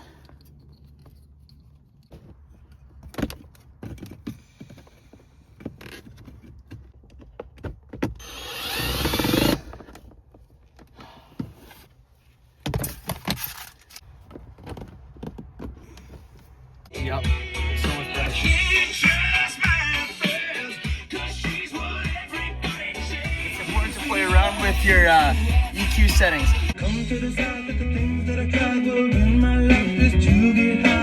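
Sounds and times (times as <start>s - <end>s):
mechanical whir: 8.2s - 9.6s.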